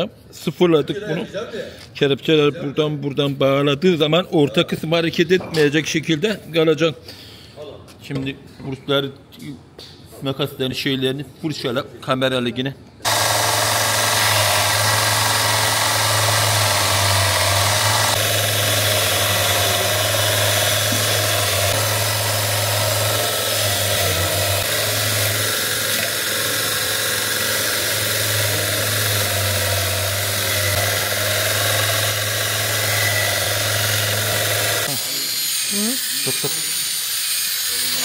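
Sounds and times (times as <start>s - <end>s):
power wire brush scouring steel: 13.1s - 38.0s.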